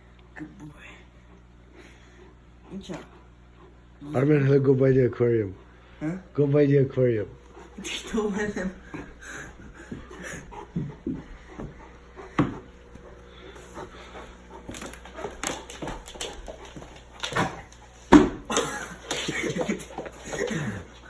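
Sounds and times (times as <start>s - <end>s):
dog moving with knocks and thumps: 7.6s - 21.0s.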